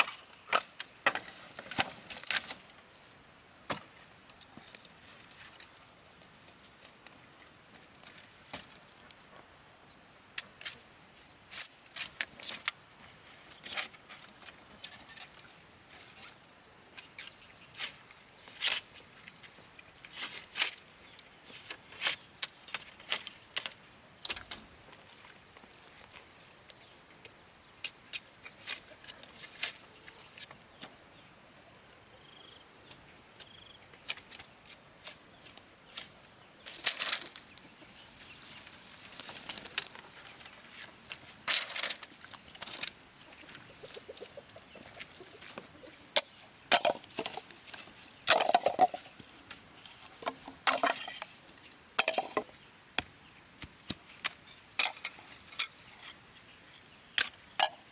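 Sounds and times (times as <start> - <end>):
faint outdoor background noise: 0.0 - 57.9.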